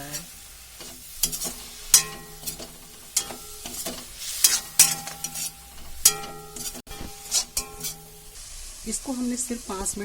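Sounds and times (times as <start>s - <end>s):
spatula scraping and knocking pan: 0.0s - 8.4s
light sizzle: 0.0s - 10.0s
pan ringing: 4.7s - 8.3s.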